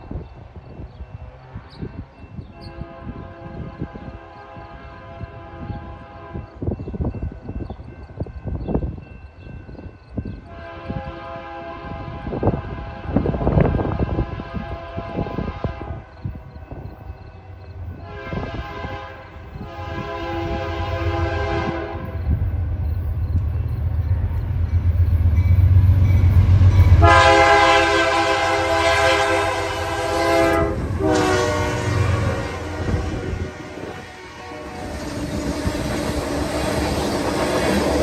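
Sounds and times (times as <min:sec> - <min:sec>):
locomotive air horn blasts: 0:02.6 - 0:06.5, 0:10.5 - 0:16.1, 0:18.0 - 0:22.2, 0:26.9 - 0:35.9
locomotive engine rumble: 0:16.1 - 0:38.0.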